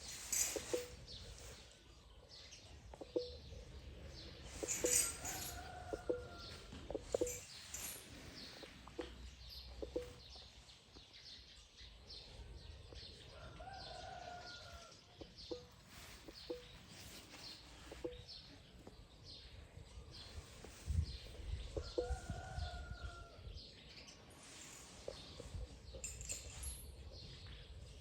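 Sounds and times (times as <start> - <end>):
birds chirping: 0.0 - 23.3.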